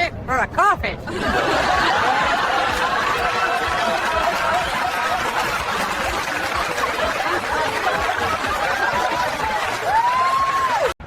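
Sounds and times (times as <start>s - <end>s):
murmur of voices: 1.0s - 10.8s
people chuckling and snickering: 1.1s - 9.9s.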